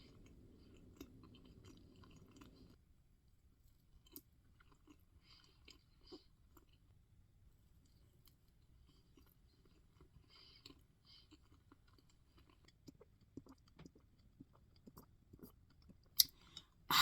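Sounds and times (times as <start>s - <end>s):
low background hum: 0.0s - 13.4s
chewing soft cake: 0.0s - 17.0s.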